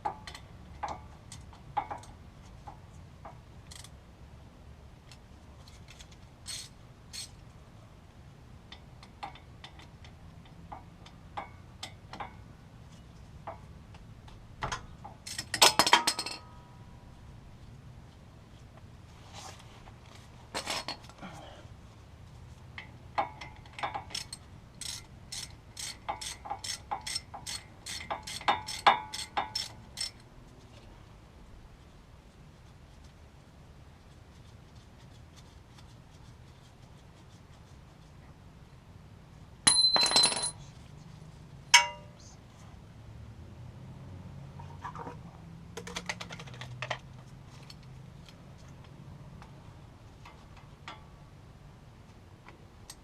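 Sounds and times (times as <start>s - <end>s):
low steady hum: 0.0s - 45.6s
ratchet wrench clicking: 6.4s - 7.3s, 24.0s - 30.2s.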